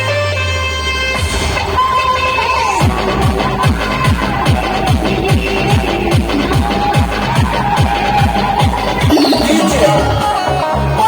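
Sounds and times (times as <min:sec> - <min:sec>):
held synth tone: 0:09.1 - 0:10.4
techno music: 0:09.1 - 0:10.4.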